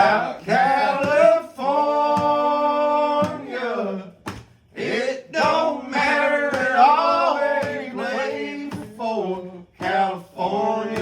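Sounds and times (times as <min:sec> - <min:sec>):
man singing: 0:00.0 - 0:11.0.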